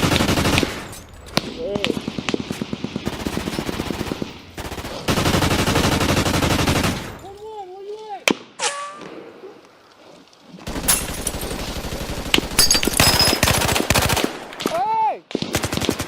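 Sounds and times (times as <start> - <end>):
rapid automatic gunfire: 0.0 - 0.9, 2.0 - 7.2, 10.7 - 14.5, 15.3 - 16.0.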